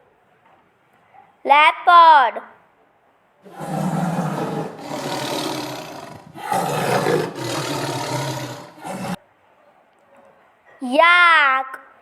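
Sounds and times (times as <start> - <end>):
leopard growling and roaring: 3.5 - 9.2.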